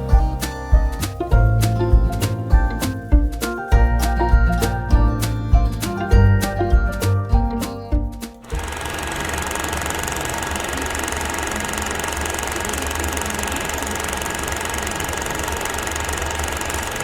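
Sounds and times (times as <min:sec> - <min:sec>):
music: 0:00.0 - 0:08.7
small machine clattering: 0:08.4 - 0:17.0.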